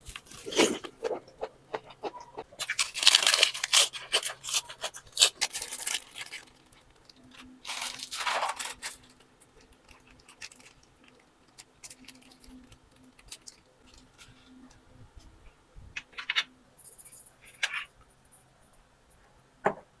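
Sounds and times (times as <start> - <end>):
raw vegetables crunching: 0.0 - 14.4.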